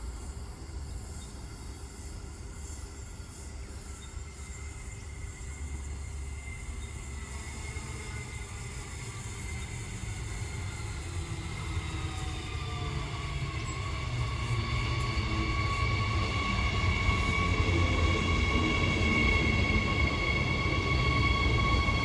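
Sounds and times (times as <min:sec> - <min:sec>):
electric train approaching: 0:00.0 - 0:22.0
high whine of steady tones: 0:00.0 - 0:22.0.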